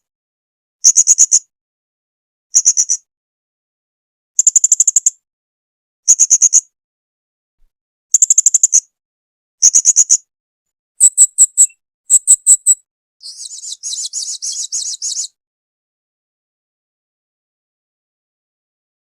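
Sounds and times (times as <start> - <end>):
parrot chirping: 11.0 - 15.3.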